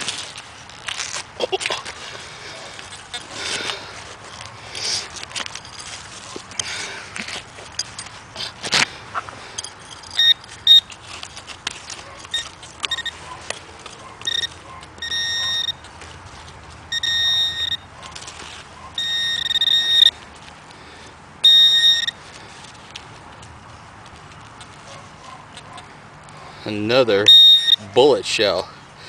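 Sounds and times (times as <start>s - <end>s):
metal detector tone: 9.6s - 11.0s, 12.3s - 13.2s, 14.2s - 15.9s, 16.9s - 17.9s, 19.0s - 20.1s, 21.4s - 22.2s, 27.2s - 27.9s.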